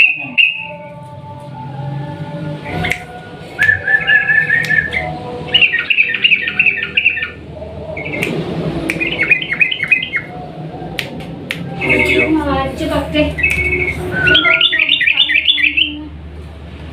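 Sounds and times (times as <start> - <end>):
bulbul singing warbling phrases: 0.0 - 1.0, 2.7 - 10.5, 11.6 - 16.2.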